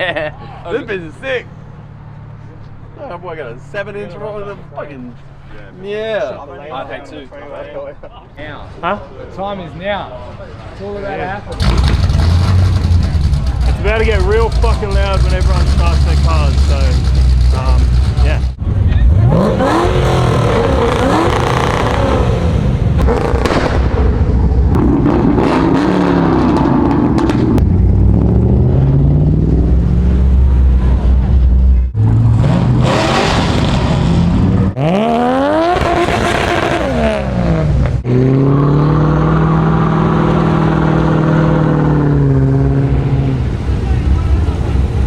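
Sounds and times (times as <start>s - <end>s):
car engines revving: 10.2s - 45.0s.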